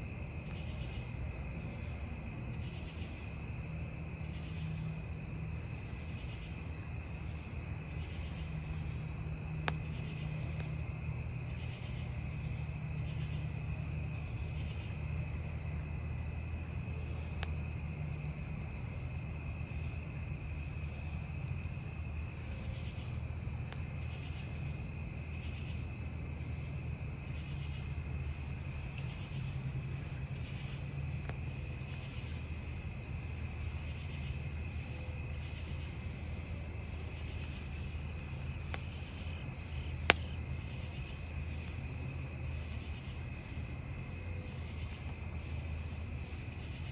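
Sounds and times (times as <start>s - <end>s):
campfire rumble: 0.0s - 46.9s
crickets trilling: 0.0s - 46.9s
high insect chirps: 2.2s - 46.9s
burning wood popping: 33.3s - 45.4s.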